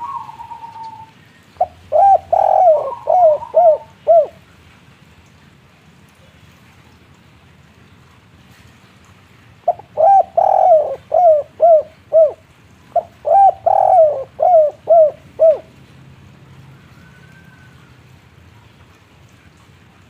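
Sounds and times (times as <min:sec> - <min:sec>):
dove cooing: 0:00.0 - 0:04.4, 0:09.7 - 0:15.8.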